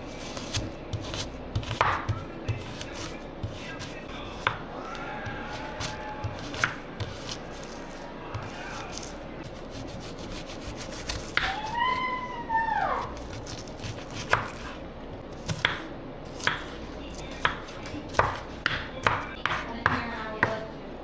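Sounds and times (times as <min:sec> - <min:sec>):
knife chopping on cutting board: 0:00.4 - 0:04.6, 0:05.2 - 0:07.4, 0:13.2 - 0:14.8, 0:15.4 - 0:20.6.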